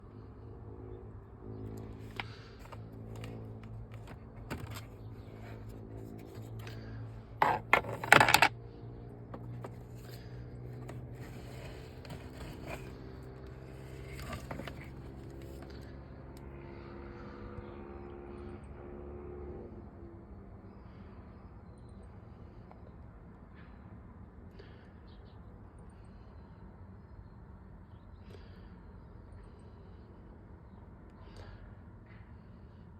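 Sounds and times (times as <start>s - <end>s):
parts scraping and clicking: 1.8s - 8.5s, 9.3s - 15.8s.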